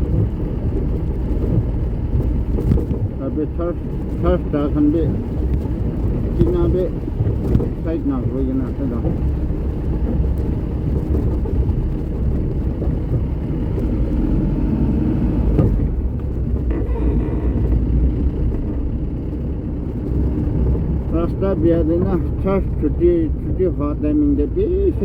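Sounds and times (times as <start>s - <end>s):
vehicle driving on rough road: 0.0s - 25.0s.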